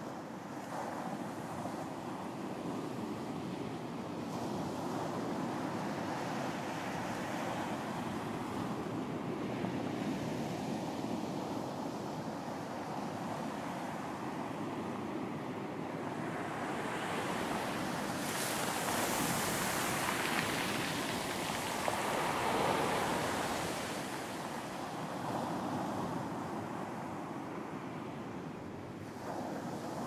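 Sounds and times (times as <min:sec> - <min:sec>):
ocean waves breaking: 0:16.2 - 0:26.5.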